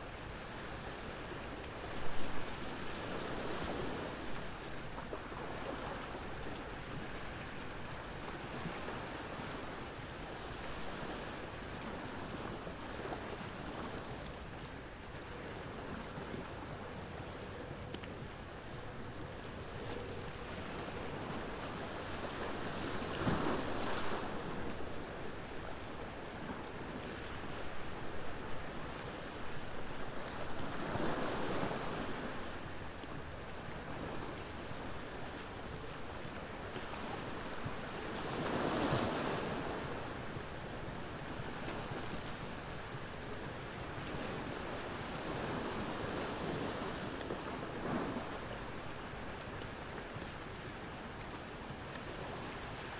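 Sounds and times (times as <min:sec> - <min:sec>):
ocean waves on shore: 0:00.0 - 0:52.9
surf wash: 0:00.0 - 0:52.9.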